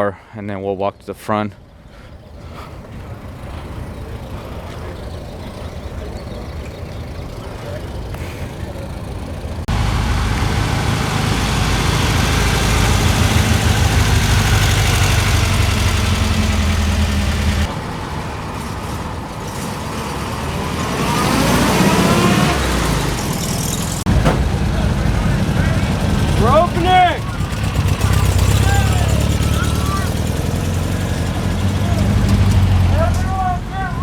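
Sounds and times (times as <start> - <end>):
vehicle engine running: 2.2 - 34.0
engine climbing in pitch: 2.3 - 34.0.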